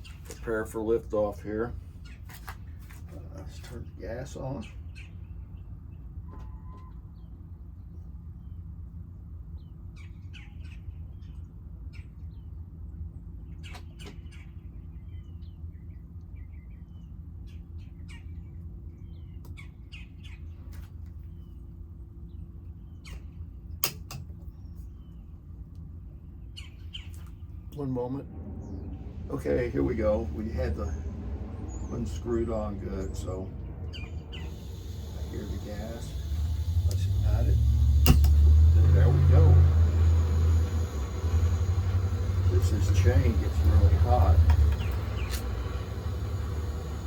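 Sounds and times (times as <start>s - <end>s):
low hum: 27.2s - 47.0s
small birds chirping: 28.6s - 47.0s
sharp clicks: 36.3s - 38.5s.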